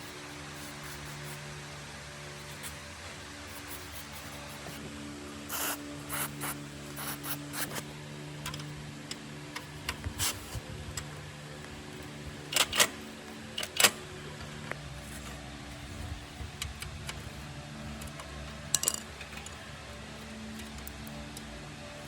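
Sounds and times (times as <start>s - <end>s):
steady low hum: 0.0s - 22.0s
scraping and rubbing noises: 2.3s - 4.9s, 9.8s - 13.8s.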